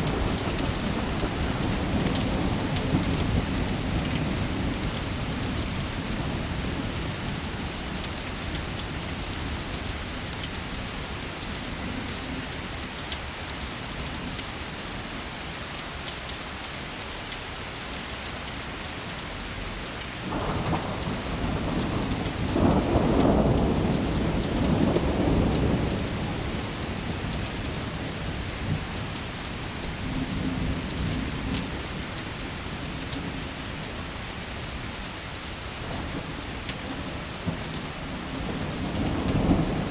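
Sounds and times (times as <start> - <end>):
heavy rain: 0.0 - 39.9
thunder rumbling: 20.3 - 32.0, 35.8 - 39.9.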